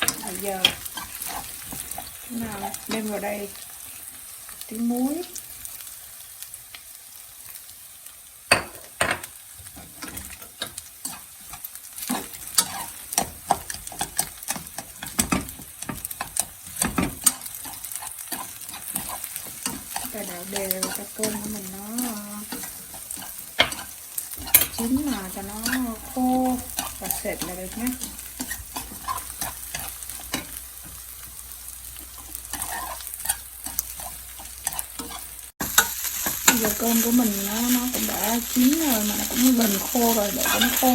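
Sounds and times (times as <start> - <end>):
spatula scraping a pan: 0.0 - 3.7, 9.6 - 40.9
rice sizzling in oil: 0.0 - 40.9
utensil striking a pan: 8.5 - 11.2, 12.1 - 31.0.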